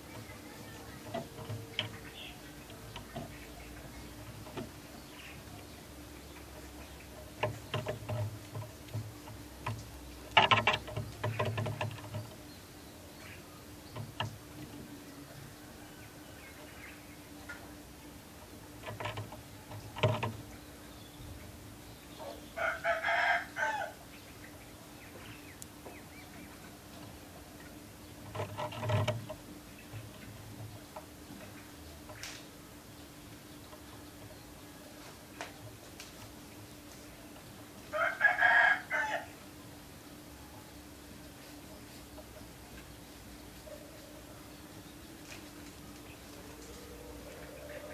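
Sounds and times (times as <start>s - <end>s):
faint steady hum: 0.0s - 47.9s
rooster crowing: 22.6s - 24.0s, 37.9s - 39.4s.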